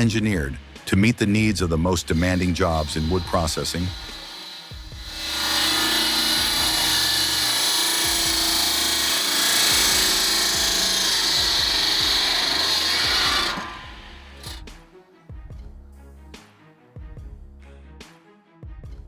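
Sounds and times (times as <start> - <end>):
circular saw cutting through log: 0.0 - 14.8.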